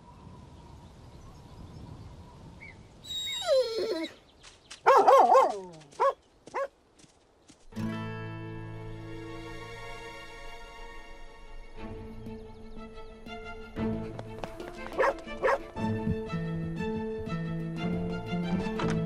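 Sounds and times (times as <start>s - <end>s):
cartoon dog whining: 3.1s - 4.2s
cartoon dog barking and yelping: 4.9s - 6.7s
background music: 7.7s - 19.0s.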